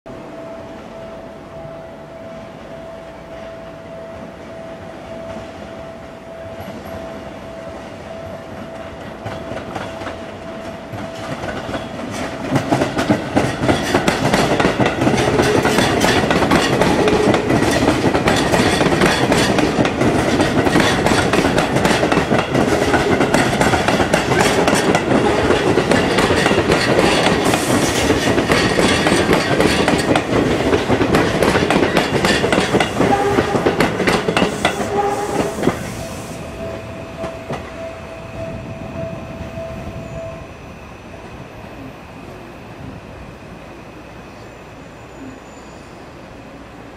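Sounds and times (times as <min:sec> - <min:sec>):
electric train passing: 0:00.1 - 0:46.9
wheels clicking over rail joints: 0:08.7 - 0:35.8.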